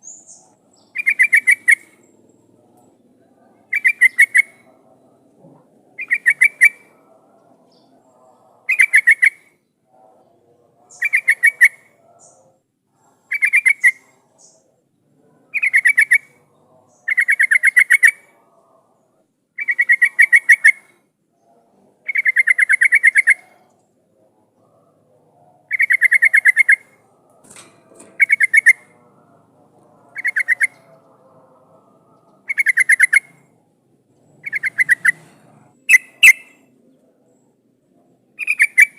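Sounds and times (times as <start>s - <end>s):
bulbul singing bubbly phrases: 28.2s - 33.4s.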